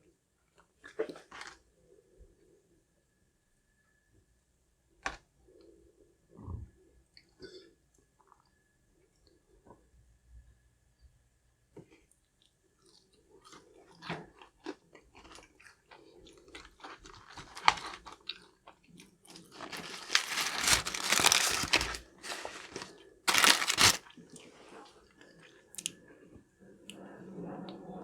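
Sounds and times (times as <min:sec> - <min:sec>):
crunching crispy food: 0:13.5 - 0:24.2
small crackles: 0:16.6 - 0:18.7, 0:19.3 - 0:24.1.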